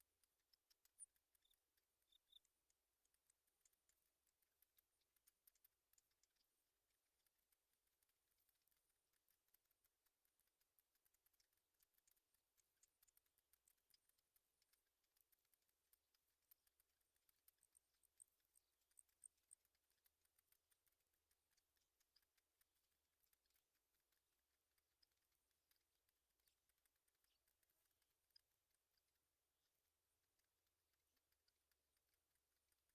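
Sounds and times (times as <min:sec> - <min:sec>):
faint clicks and ticks: 0:00.0 - 0:32.9.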